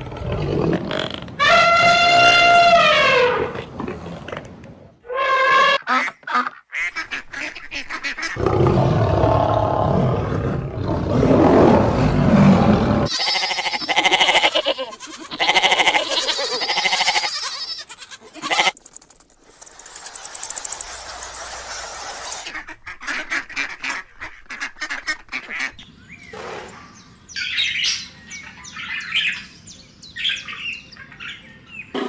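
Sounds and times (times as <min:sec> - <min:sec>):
honking animal calls: 0:13.1 - 0:22.6
short animal calls: 0:18.4 - 0:22.5.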